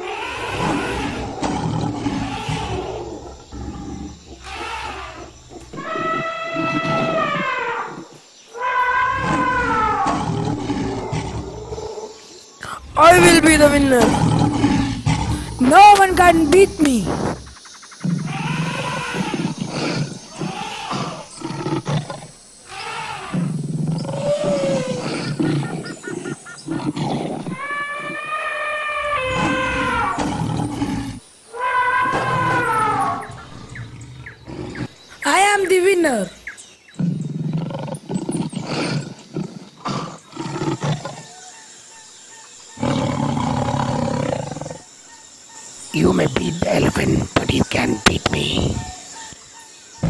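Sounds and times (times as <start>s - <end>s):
big cat roaring: 0.0s - 15.7s, 18.0s - 35.0s, 37.0s - 41.3s, 42.8s - 44.9s.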